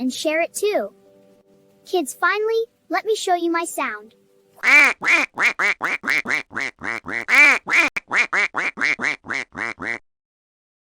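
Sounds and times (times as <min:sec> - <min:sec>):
duck quacking rapidly: 0:04.6 - 0:10.0.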